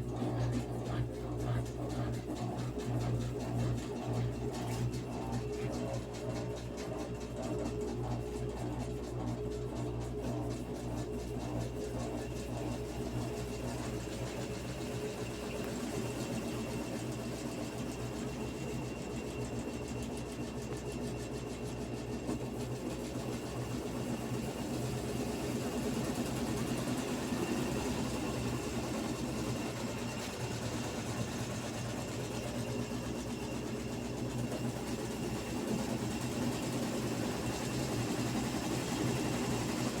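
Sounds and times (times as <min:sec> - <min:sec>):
washing machine motor hum: 0:00.0 - 0:15.8.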